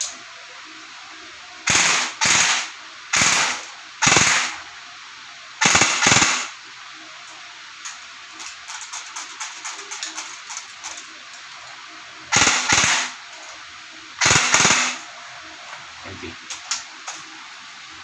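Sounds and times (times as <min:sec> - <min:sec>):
airsoft rifle firing bursts: 0:01.7 - 0:04.5, 0:05.6 - 0:06.5, 0:12.3 - 0:13.2, 0:14.2 - 0:15.0.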